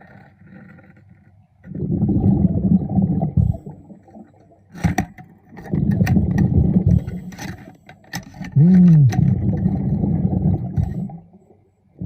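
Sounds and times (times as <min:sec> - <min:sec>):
underwater breath bubbling: 0:01.7 - 0:04.3, 0:05.7 - 0:07.4, 0:08.6 - 0:12.0.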